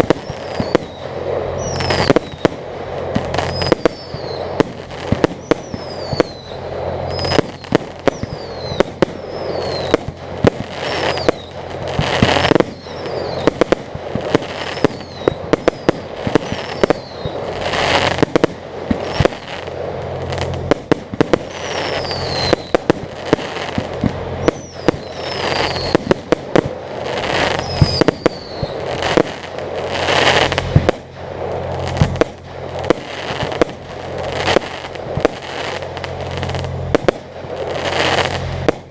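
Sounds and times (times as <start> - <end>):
fireworks bangs: 0.0 - 38.9
fireworks crackling: 0.0 - 38.9
falling whistles: 0.2 - 2.5, 3.4 - 4.6, 5.4 - 10.1, 10.8 - 11.6, 12.4 - 13.6, 14.7 - 17.5, 19.0 - 19.4, 21.5 - 22.9, 24.4 - 26.2, 27.5 - 28.8.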